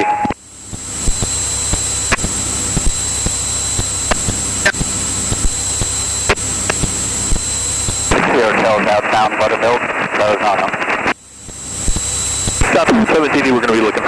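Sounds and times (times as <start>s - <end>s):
thin high whine: 0.0s - 14.0s
cockpit hiss and drone: 0.3s - 14.0s
sharp clicks: 0.7s - 8.2s, 11.4s - 12.7s.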